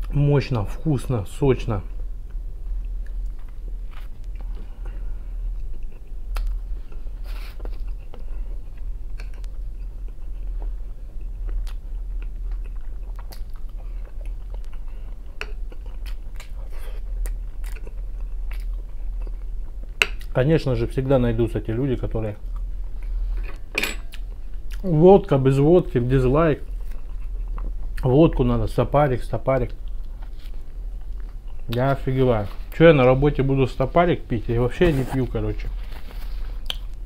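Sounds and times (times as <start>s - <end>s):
steady low hum: 0.0s - 37.0s
chewing and biting food: 7.5s - 20.3s, 26.6s - 28.0s.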